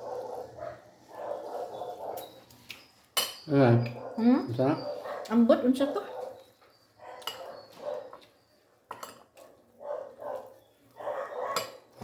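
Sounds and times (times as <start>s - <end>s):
utensils clinking on a plate: 2.2s - 4.7s, 6.4s - 9.5s, 11.4s - 12.0s.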